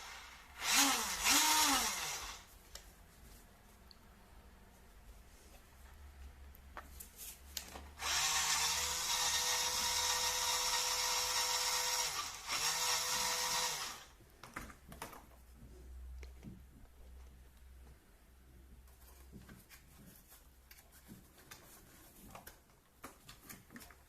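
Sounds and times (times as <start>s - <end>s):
electric motor whine: 0.0s - 2.4s.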